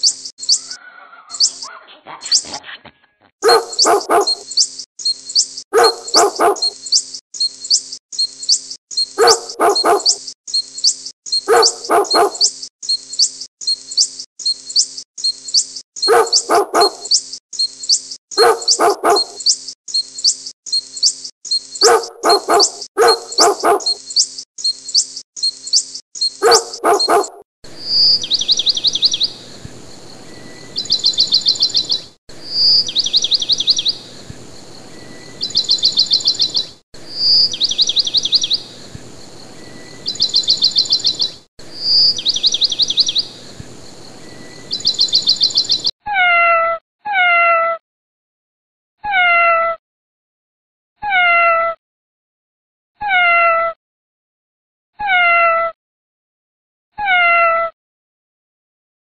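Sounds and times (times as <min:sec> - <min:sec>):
dog barking: 0:03.4 - 0:04.5, 0:05.8 - 0:06.8, 0:09.2 - 0:10.2, 0:11.5 - 0:12.5, 0:16.0 - 0:17.1, 0:18.4 - 0:19.4, 0:21.8 - 0:24.0, 0:26.4 - 0:27.4
high rapid chirping trill: 0:03.4 - 0:27.3
cat meowing: 0:49.1 - 0:49.8, 0:55.0 - 0:55.7, 0:57.0 - 0:57.7.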